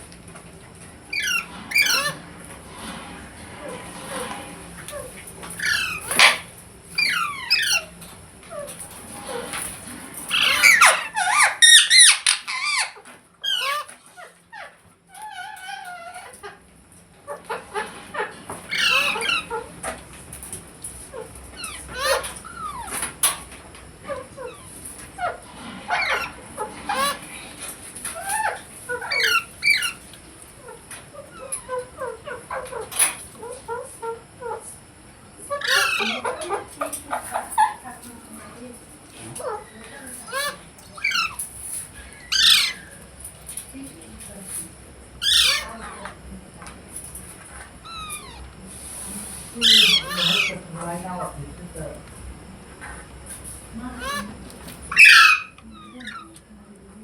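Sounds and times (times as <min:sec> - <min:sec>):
parrot squeaky calls: 0:01.1 - 0:02.2, 0:05.6 - 0:08.0, 0:10.3 - 0:16.5, 0:18.7 - 0:19.6, 0:21.6 - 0:23.1, 0:24.4 - 0:27.3, 0:28.2 - 0:30.0, 0:35.5 - 0:36.4, 0:40.2 - 0:41.5, 0:42.1 - 0:43.0, 0:45.2 - 0:45.8, 0:47.8 - 0:48.5, 0:49.6 - 0:50.6, 0:54.0 - 0:56.4.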